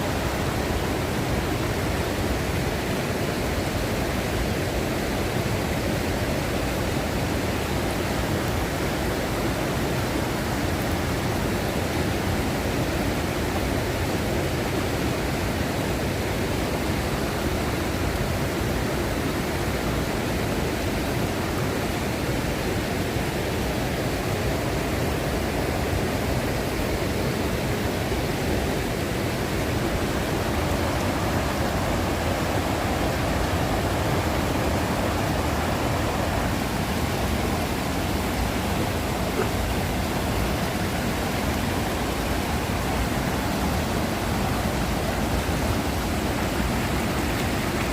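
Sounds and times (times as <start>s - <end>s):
waterfall roaring: 0.0s - 47.9s.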